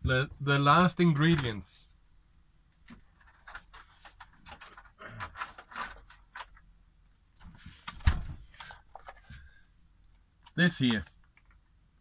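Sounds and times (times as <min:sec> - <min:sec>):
small objects rustling and clicking: 0:02.8 - 0:06.7.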